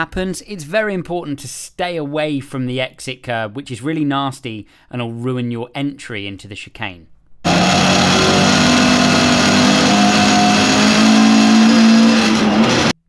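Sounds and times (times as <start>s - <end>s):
racing engine revving high: 7.5s - 13.0s.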